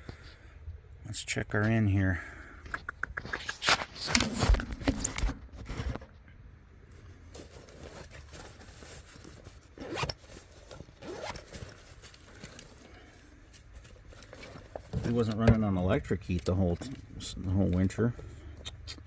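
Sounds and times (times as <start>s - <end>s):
scrapes and sharp clicks: 2.6s - 5.3s.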